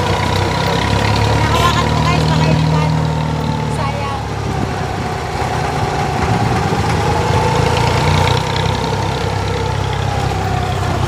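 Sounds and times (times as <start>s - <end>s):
boat engine humming: 0.0s - 11.0s
steady engine whine: 0.0s - 11.0s.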